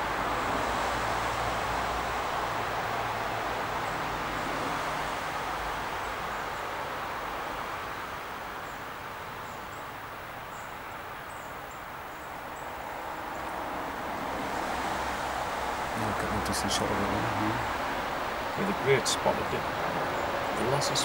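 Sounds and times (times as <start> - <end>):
small birds chirping: 5.3 - 14.3, 15.3 - 21.0
steady rushing noise: 11.9 - 21.0.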